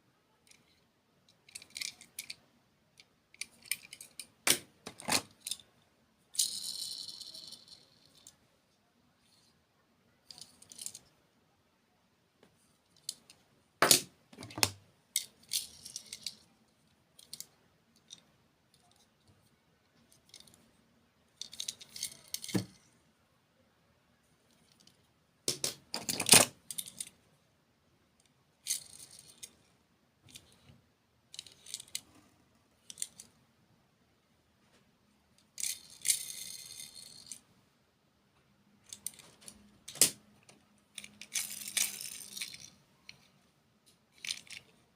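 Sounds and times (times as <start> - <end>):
candy wrappers rattling and crinkling: 21.4 - 22.7.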